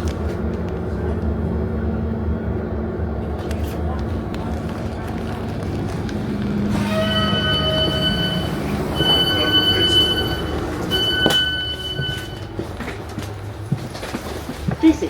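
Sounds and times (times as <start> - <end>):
train rumble: 0.0 - 15.0
train wheels squealing: 6.7 - 12.5.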